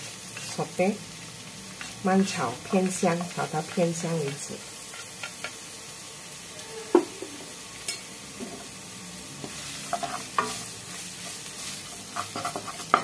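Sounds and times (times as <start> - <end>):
onion and garlic sizzling in oil: 0.0 - 13.0
wooden spatula scraping a pan: 9.4 - 13.0.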